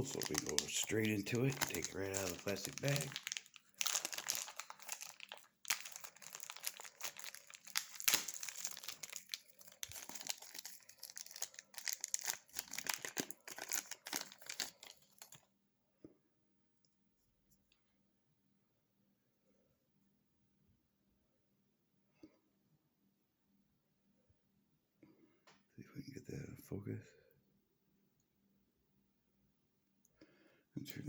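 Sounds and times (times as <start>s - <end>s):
plastic bag crinkling: 0.0s - 15.4s.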